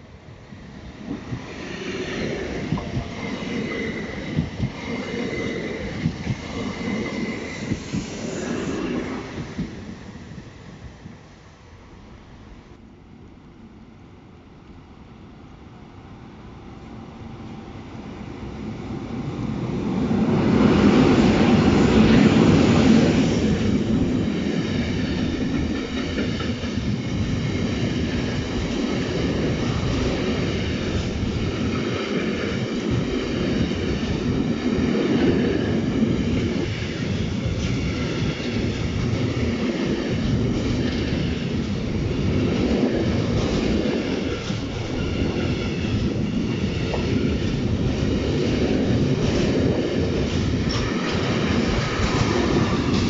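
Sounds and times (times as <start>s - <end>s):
train wheels rumbling on rails: 0.6s - 11.2s, 17.4s - 53.0s
clickety-clack over rail joints: 2.3s - 8.4s, 21.5s - 53.0s.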